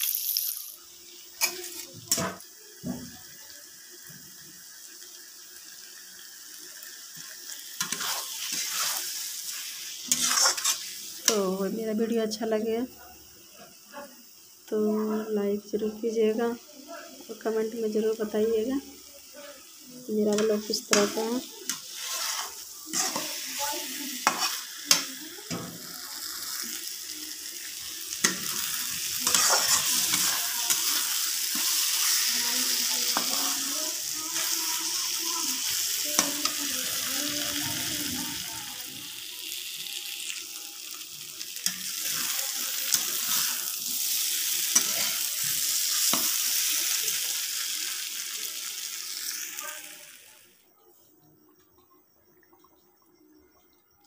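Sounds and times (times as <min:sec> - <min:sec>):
curry sizzling in a pan: 0:00.0 - 0:50.7
metal spatula scraping a pan: 0:01.4 - 0:02.4, 0:07.8 - 0:11.4, 0:20.2 - 0:25.7, 0:28.2 - 0:34.9, 0:35.6 - 0:36.6, 0:41.6 - 0:46.7.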